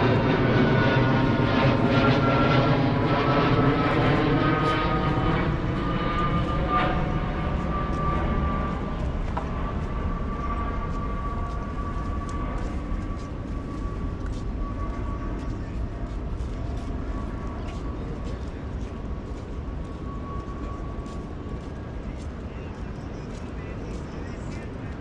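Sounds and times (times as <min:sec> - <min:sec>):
airplane flying over: 0:00.0 - 0:25.0.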